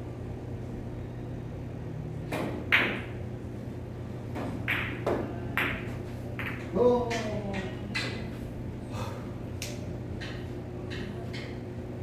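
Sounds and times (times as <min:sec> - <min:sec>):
cue tip striking ball: 0:02.4 - 0:03.2, 0:04.4 - 0:06.8
billiard balls clacking: 0:04.4 - 0:08.3.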